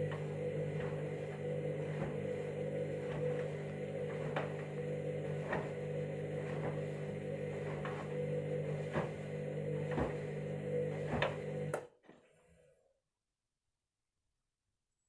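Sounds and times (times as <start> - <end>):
washing machine motor humming: 0.0 - 11.8.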